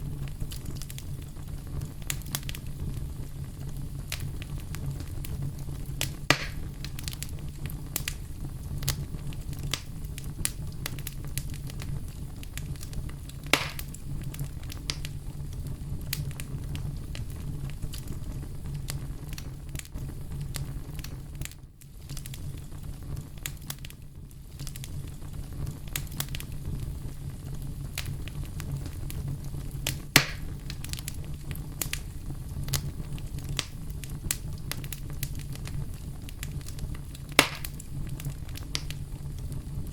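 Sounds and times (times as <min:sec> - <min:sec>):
bonfire crackling and popping: 0:00.0 - 0:39.9
low rumble of burning: 0:00.0 - 0:39.9.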